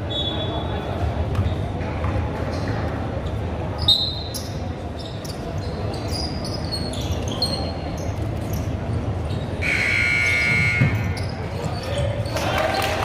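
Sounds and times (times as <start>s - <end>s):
sneaker squeaks on court: 2.5s - 9.6s, 10.2s - 12.4s
high-pitched signal tone: 9.6s - 11.0s.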